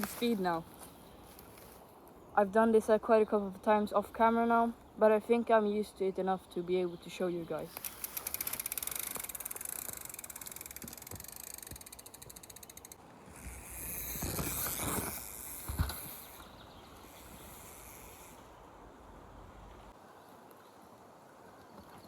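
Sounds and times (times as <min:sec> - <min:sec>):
bike freehub ratchet clicking: 0:07.8 - 0:16.4, 0:17.1 - 0:18.3.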